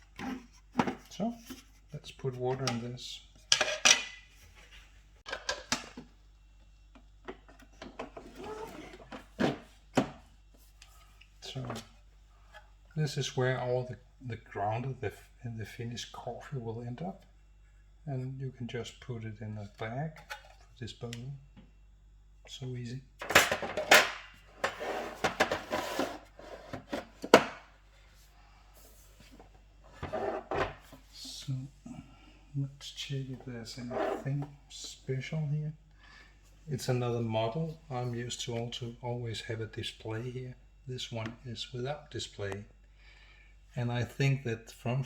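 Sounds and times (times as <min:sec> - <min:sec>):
plastic parts scraping and rustling: 0:00.0 - 0:06.1, 0:23.2 - 0:27.7.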